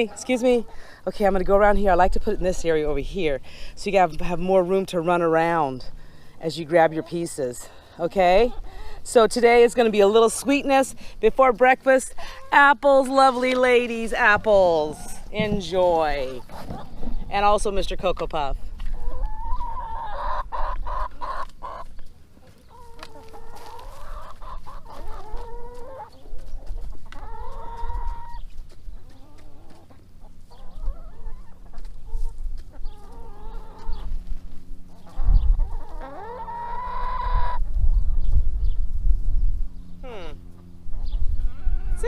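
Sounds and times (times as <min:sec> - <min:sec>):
hens clucking: 0:00.0 - 0:38.4, 0:40.4 - 0:42.0.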